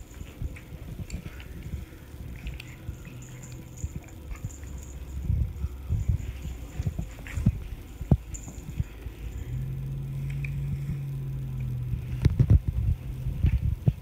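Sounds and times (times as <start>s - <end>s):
soft low thumps: 3.7s - 14.0s.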